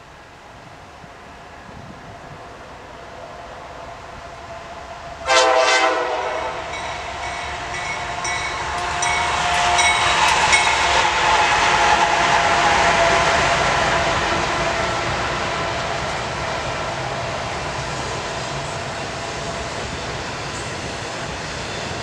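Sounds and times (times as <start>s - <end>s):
train rumble and wheel noise: 0.0s - 22.0s
locomotive air horn blast: 5.2s - 6.8s, 8.6s - 16.6s.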